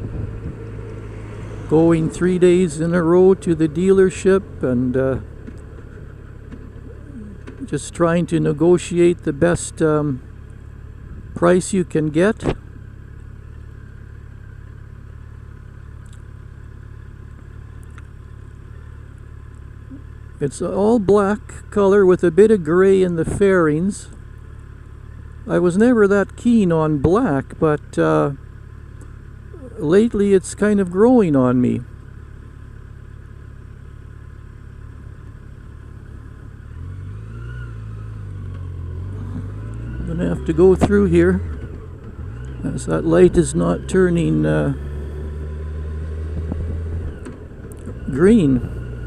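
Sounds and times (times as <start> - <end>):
wind noise: 0.0 - 0.6
motorcycle engine rumble: 0.0 - 49.0.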